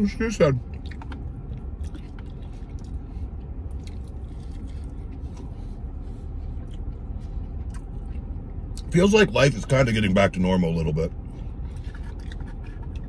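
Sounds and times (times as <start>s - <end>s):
steady low hum: 0.0s - 13.0s
person chewing food: 0.6s - 8.9s, 11.3s - 13.0s
wet mouth sounds and clicks: 0.7s - 3.0s, 11.7s - 13.0s.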